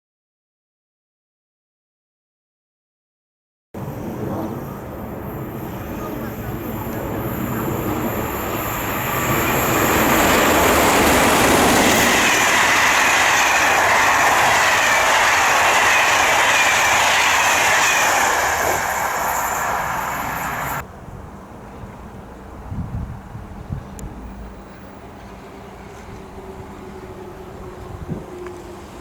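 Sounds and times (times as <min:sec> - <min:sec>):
train wheels on rails: 0:03.8 - 0:20.9, 0:23.7 - 0:29.0.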